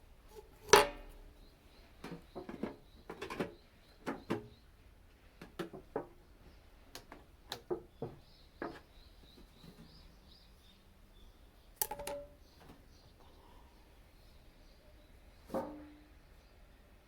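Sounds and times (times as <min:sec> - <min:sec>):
metal tin knocks and clanks: 0:00.6 - 0:01.2, 0:11.8 - 0:12.4
birds chirping faintly: 0:01.0 - 0:17.0.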